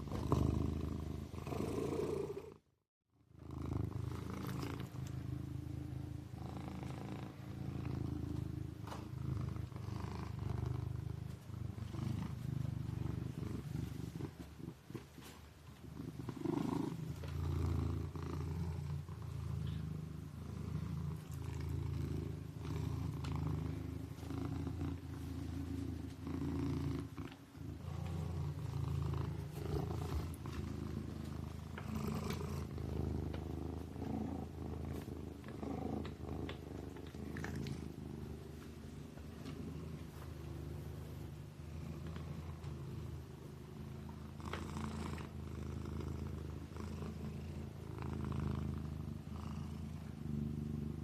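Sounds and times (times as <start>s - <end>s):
kitten purring: 0.0s - 2.7s, 3.3s - 51.0s.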